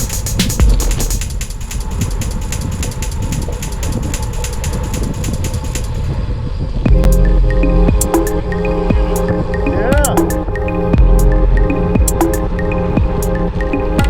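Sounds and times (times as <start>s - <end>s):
low rumble: 6.7s - 9.4s, 11.0s - 12.0s.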